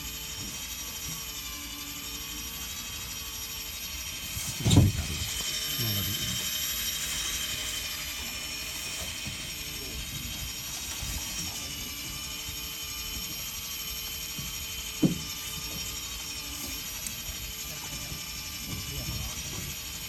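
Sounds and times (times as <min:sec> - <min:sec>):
electric fishing reel motor whine: 0:00.0 - 0:20.0.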